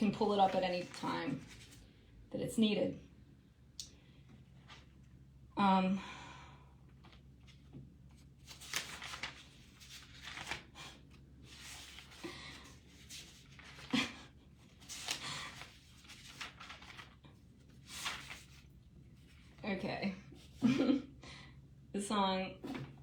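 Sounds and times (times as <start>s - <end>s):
rustling and handling noises: 0.0s - 2.0s, 4.2s - 5.2s, 6.9s - 20.9s, 22.6s - 23.0s.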